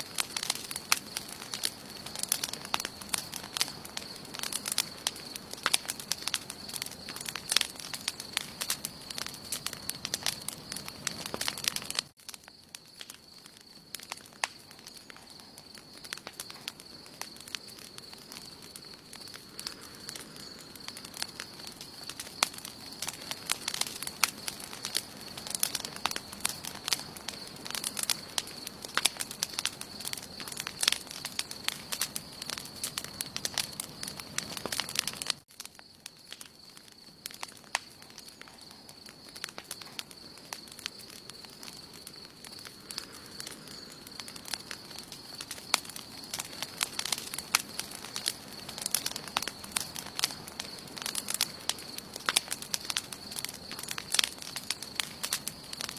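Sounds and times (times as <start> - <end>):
campfire crackling and popping: 0.0 - 55.9.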